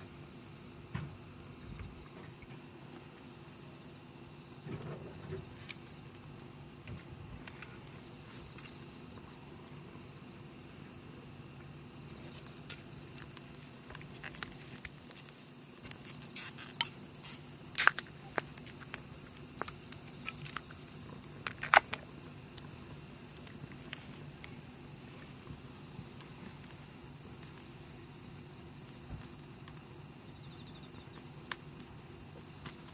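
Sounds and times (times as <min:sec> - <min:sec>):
crickets chirring: 0:00.0 - 0:32.9
campfire crackling and popping: 0:12.4 - 0:22.6.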